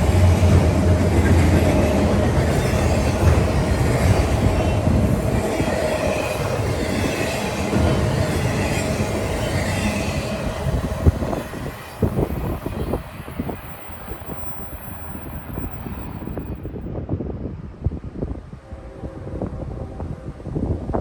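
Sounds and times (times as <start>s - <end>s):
train wheel squeal: 0.0s - 16.7s
train rumbling past: 0.0s - 17.0s.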